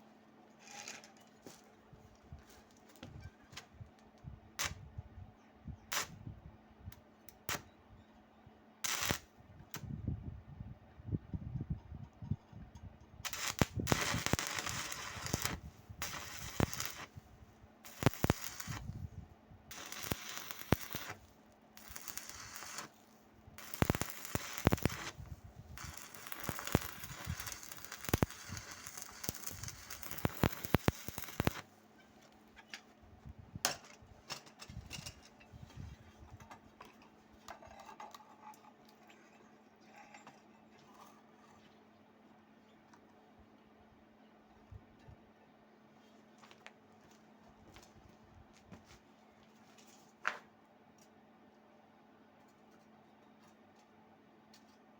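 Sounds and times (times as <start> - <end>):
welding arc crackling and popping: 8.8 - 9.8, 13.2 - 17.2, 17.8 - 19.1, 19.7 - 31.7.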